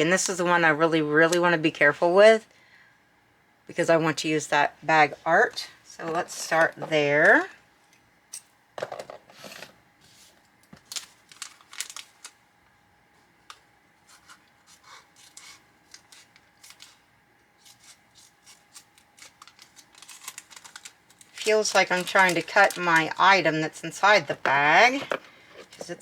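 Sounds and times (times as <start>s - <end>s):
paper rustling: 10.0s - 12.4s, 17.6s - 23.2s
scissors snipping paper: 17.6s - 22.8s.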